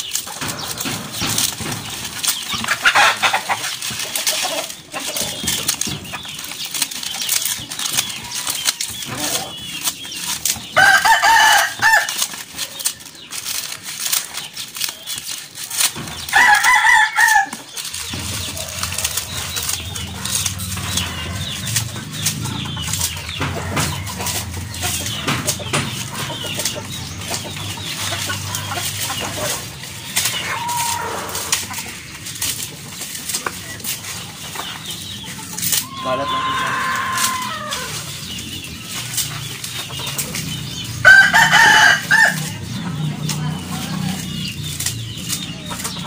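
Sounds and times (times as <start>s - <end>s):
chicken calls: 0.0s - 46.0s
scissors cutting dried leaves: 0.0s - 46.0s.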